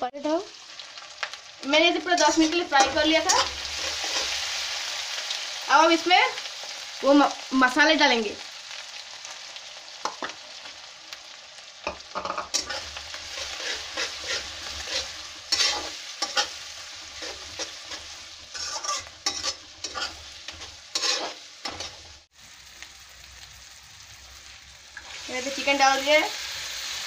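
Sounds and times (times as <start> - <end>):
spice paste sizzling in oil: 0.1 - 27.0
spoon stirring and scraping: 12.2 - 22.0.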